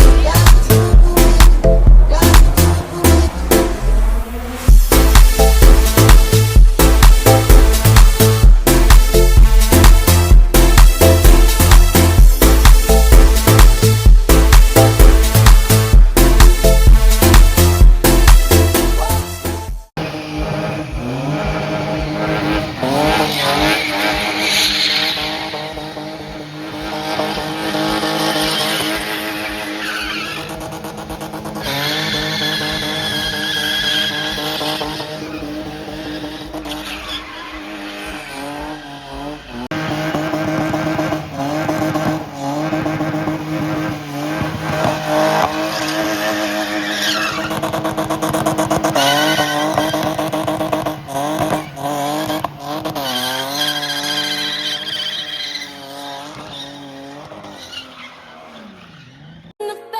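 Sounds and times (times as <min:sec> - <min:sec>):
car engines revving: 0:00.0 - 0:59.6
high tyre squeal: 0:20.0 - 0:59.6.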